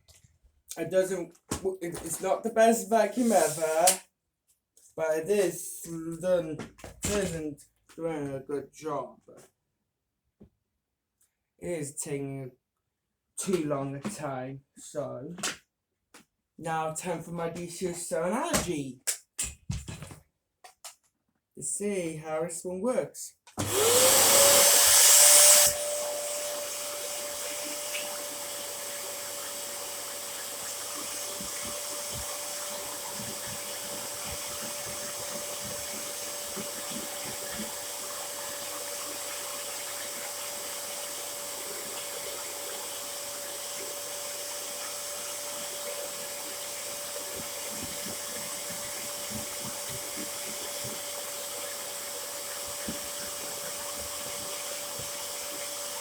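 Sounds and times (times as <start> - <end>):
upright vacuum cleaner running: 3.1 - 4.0, 23.6 - 56.0.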